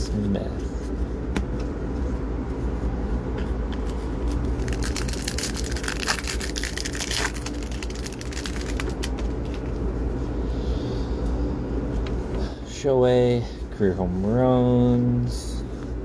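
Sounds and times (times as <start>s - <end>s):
steady low hum: 0.0s - 16.0s
cards crackling while handled: 3.8s - 9.9s.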